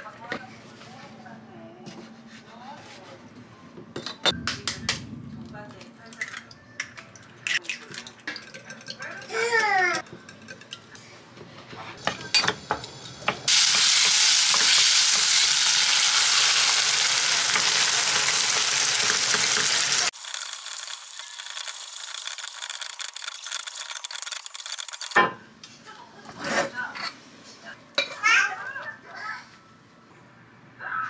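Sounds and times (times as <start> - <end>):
eggs whisked in glass bowl: 7.9 - 10.9
tomatoes and egg sizzling: 12.0 - 25.2.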